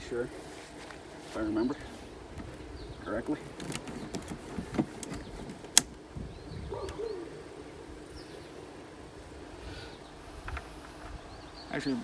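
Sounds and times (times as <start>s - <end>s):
faint bird chirps: 6.2s - 8.7s.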